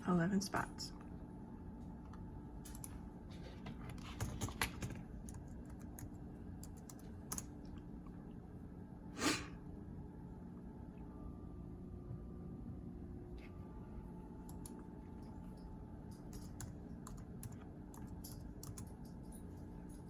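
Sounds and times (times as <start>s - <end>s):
typing on computer keyboard: 3.9s - 7.5s, 16.2s - 19.3s.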